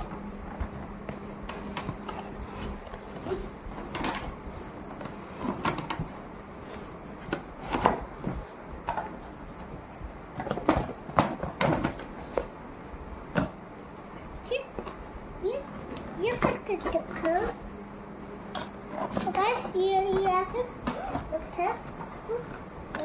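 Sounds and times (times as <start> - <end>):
objects knocking in cupboard: 10.3 - 12.2.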